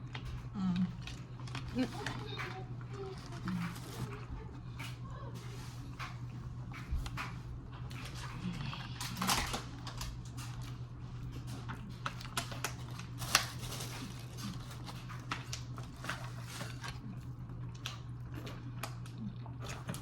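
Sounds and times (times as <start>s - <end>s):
eating clicks and crackles: 0.0s - 20.0s
steady low hum: 0.0s - 20.0s.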